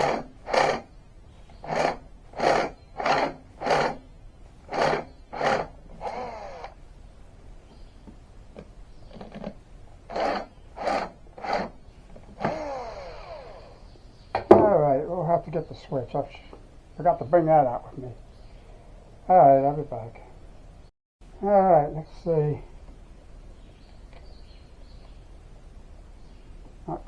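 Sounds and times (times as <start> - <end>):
small motor whining down: 0.0 - 0.9, 1.6 - 4.0, 4.7 - 6.8, 10.1 - 13.9
tool rasping on metal: 0.0 - 0.9, 1.6 - 4.0, 4.7 - 6.8, 9.1 - 11.8.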